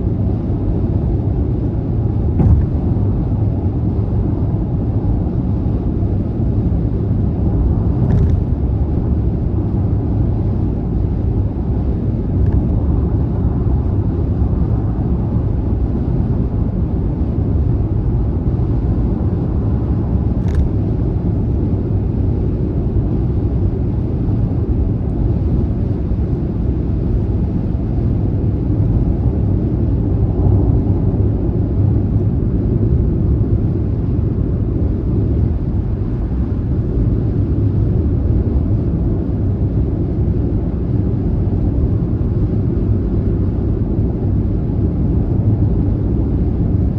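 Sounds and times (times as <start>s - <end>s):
car cruising on motorway: 0.0s - 46.9s.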